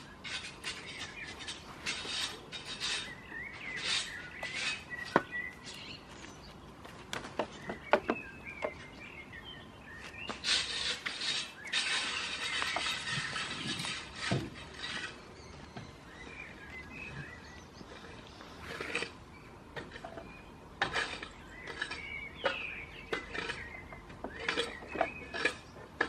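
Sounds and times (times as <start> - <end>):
small birds chirping: 0.0 - 26.0
rustling: 10.0 - 16.0.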